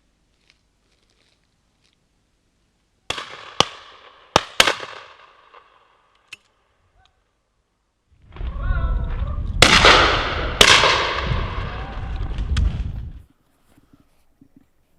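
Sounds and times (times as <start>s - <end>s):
shotgun shots echoing: 3.1s - 6.0s, 9.6s - 11.6s.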